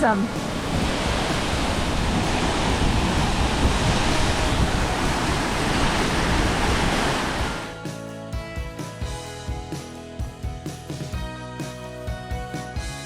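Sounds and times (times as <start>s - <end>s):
waterfall roar: 0.0s - 7.8s
guitar background music: 0.0s - 13.0s.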